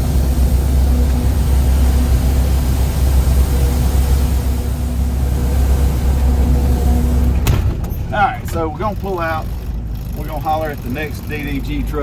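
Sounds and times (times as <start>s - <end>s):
faint hum: 0.0s - 8.8s
diesel truck engine idling: 0.0s - 12.0s.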